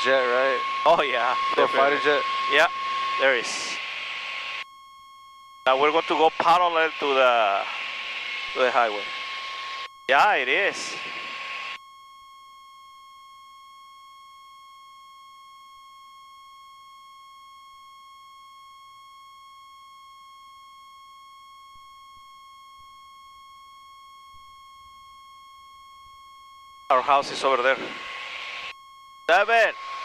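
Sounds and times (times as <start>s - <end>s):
high electronic tone: 0.0s - 4.6s.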